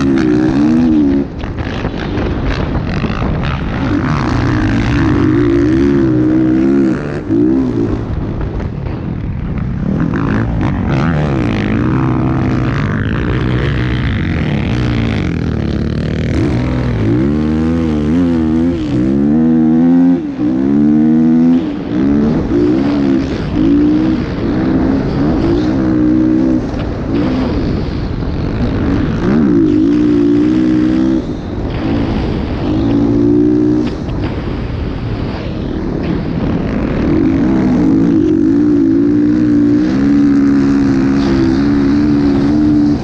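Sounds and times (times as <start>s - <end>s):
dirt bike engines revving: 0.0s - 43.0s.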